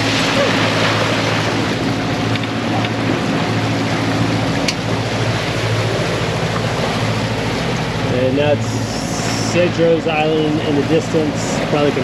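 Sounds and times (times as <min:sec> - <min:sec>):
boat engine droning: 0:00.0 - 0:12.0
water noise: 0:00.0 - 0:12.0
wind: 0:00.0 - 0:12.0.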